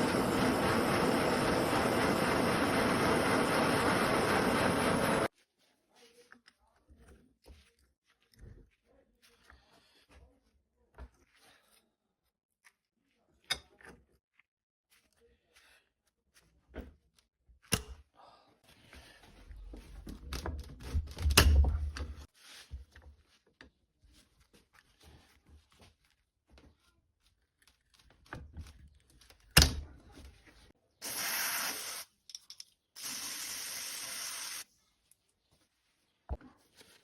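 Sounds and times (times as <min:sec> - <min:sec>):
hissing spray: 0:31.0 - 0:32.1, 0:33.0 - 0:34.6.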